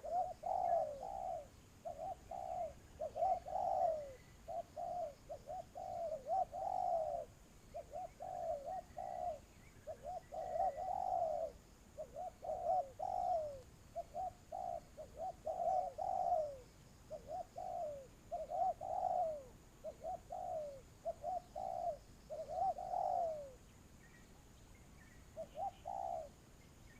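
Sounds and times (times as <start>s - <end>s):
doves cooing: 0.0s - 23.6s, 25.3s - 26.4s.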